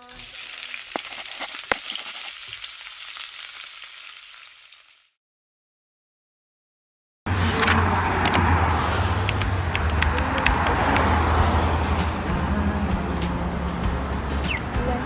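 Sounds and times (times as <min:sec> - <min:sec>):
crackling hiss: 0:00.0 - 0:05.1
sharp clicks: 0:09.2 - 0:11.2.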